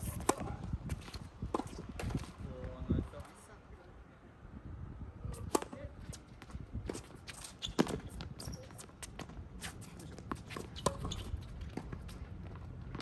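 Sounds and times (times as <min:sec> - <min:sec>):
wind rumble on microphone: 0:00.0 - 0:10.3
racket hitting ball: 0:00.1 - 0:00.5, 0:05.4 - 0:05.8
footsteps on court: 0:06.0 - 0:13.0.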